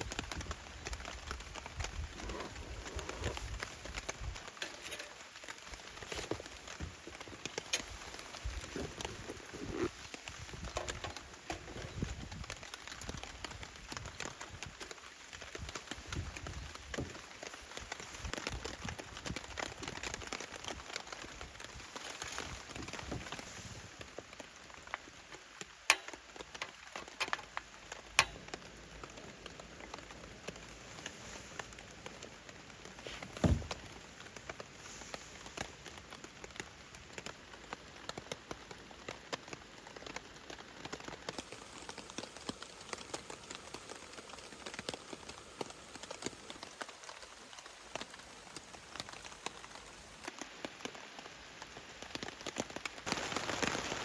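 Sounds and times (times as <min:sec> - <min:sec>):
rain falling: 0:00.0 - 0:54.0
sharp clicks: 0:25.9 - 0:28.8
dull thump: 0:33.2 - 0:33.9.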